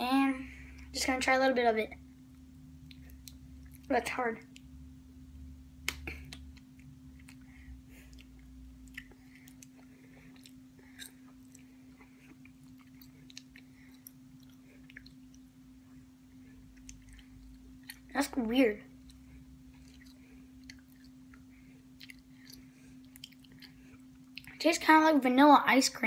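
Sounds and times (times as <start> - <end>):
steady low hum: 0.0 - 26.0
chewing hard candy: 6.1 - 15.5, 16.6 - 18.2, 19.0 - 24.6.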